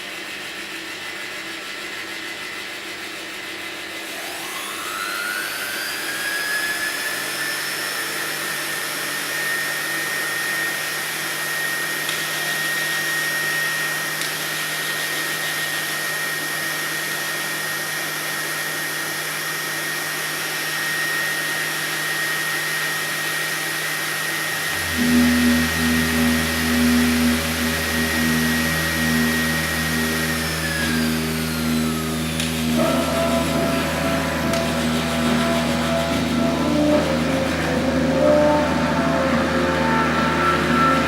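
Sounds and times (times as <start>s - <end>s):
high whistle: 24.4s - 41.0s
low sustained pulsing tones: 24.6s - 41.0s.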